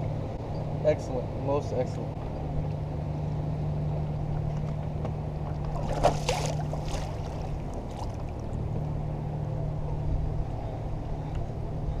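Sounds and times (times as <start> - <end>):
low engine hum: 0.0 - 12.0
splashing: 5.6 - 8.5.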